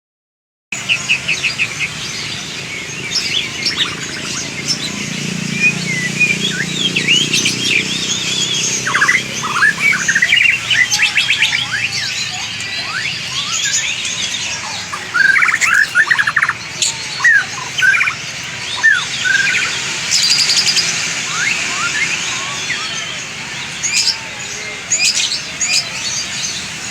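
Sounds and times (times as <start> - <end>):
bird whistles and chirps: 3.1 - 24.2.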